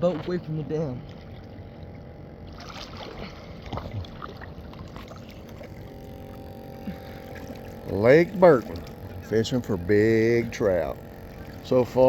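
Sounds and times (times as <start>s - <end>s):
water splashing against boat hull: 0.0s - 12.0s
small splashes or knocks: 2.5s - 5.8s.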